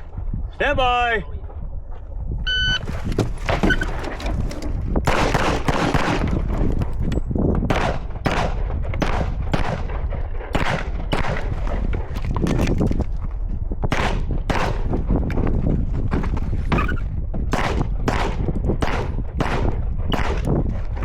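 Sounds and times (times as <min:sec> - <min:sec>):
gunshots: 0:05.0 - 0:06.5, 0:07.7 - 0:12.6, 0:13.9 - 0:15.0, 0:17.5 - 0:20.5.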